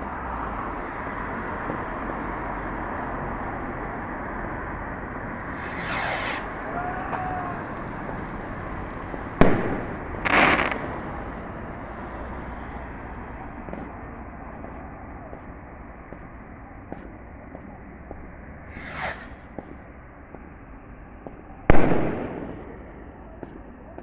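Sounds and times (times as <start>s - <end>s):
firework bang: 5.3s - 11.6s, 18.7s - 20.5s, 21.2s - 23.0s
firework whooshing streak: 5.3s - 12.2s, 18.6s - 19.9s
faint whistle: 5.5s - 9.5s, 18.7s - 19.6s.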